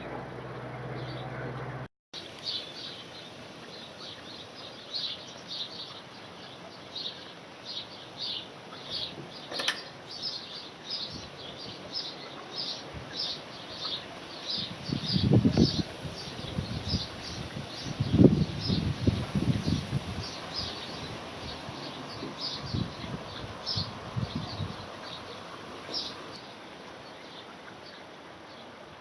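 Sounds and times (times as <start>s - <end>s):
bird chirping: 19.6s - 26.2s.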